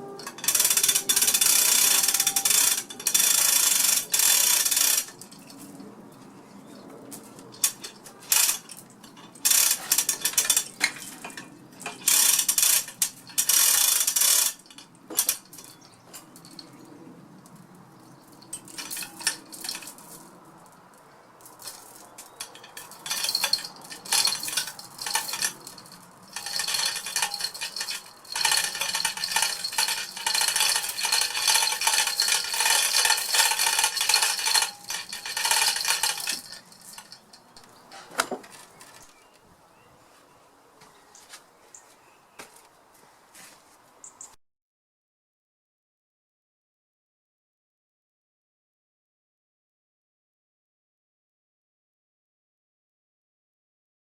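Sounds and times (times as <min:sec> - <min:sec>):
chain clinking and rattling: 0:00.0 - 0:06.3, 0:07.2 - 0:39.3.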